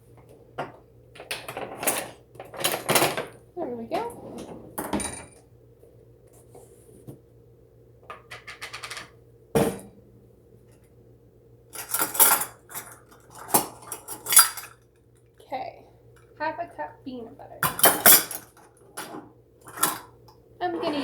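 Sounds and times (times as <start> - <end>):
faint steady hum: 0.0 - 21.0
dishes clinking and clattering: 4.0 - 5.4, 11.8 - 14.8, 17.6 - 21.0.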